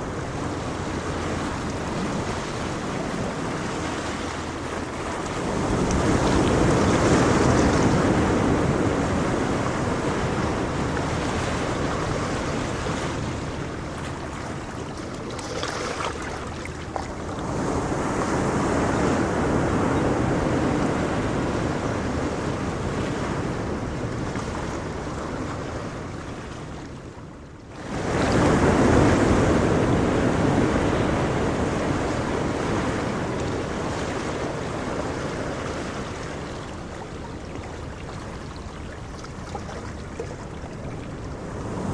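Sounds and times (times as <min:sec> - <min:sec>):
ocean waves crashing: 0:00.0 - 0:23.5.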